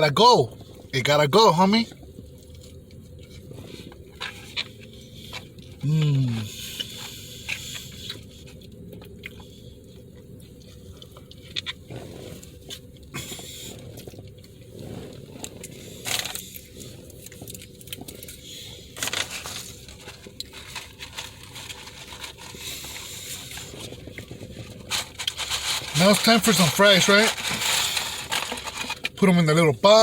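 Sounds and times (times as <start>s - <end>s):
person chewing food: 1.9s - 25.6s.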